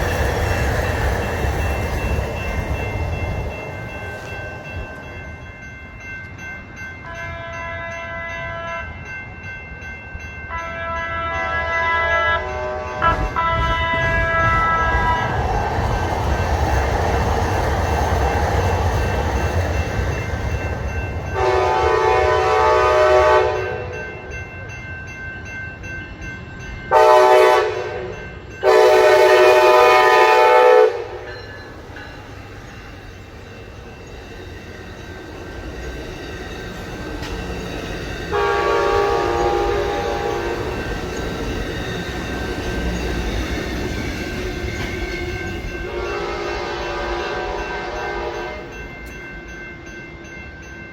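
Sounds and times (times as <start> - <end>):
train rumbling past: 0.0 - 50.9
train horn blasts: 7.0 - 8.9, 10.5 - 15.4, 21.4 - 24.0, 26.9 - 31.3, 38.3 - 40.8, 45.1 - 48.7.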